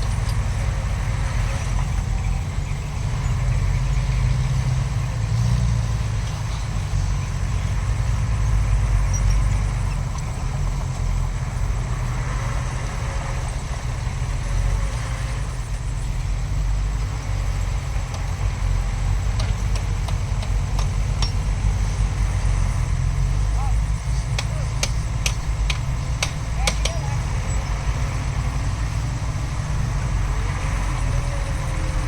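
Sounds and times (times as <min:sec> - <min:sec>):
diesel machinery rumbling: 0:00.0 - 0:32.0
sharp clicks: 0:24.0 - 0:27.7.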